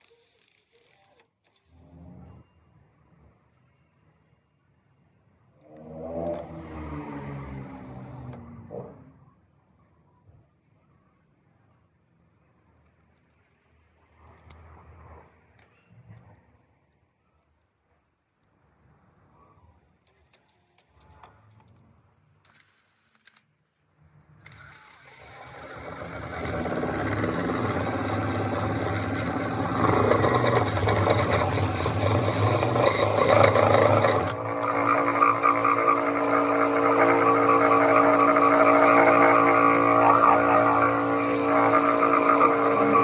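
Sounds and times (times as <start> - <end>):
motor running: 24.5 - 43.0.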